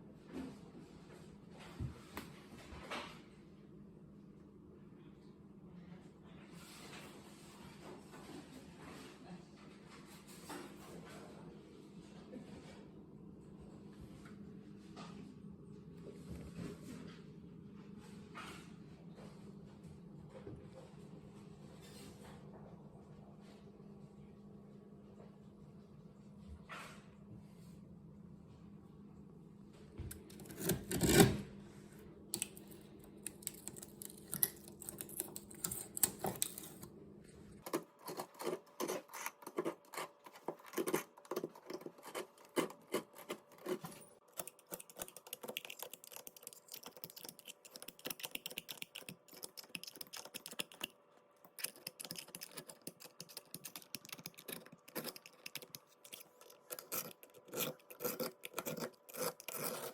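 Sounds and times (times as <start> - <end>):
hand tool scraping grout: 52.4 - 59.9.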